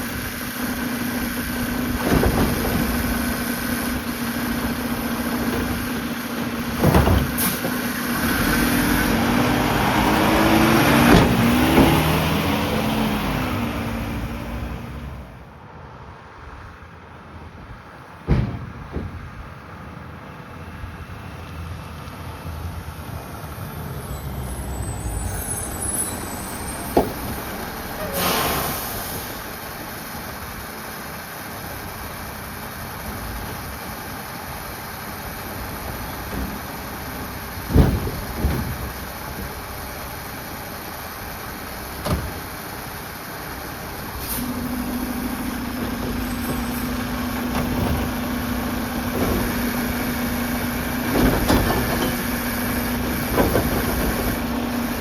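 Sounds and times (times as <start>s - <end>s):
garbage truck running: 0.0s - 15.6s, 16.4s - 55.0s
air hiss: 28.0s - 29.5s.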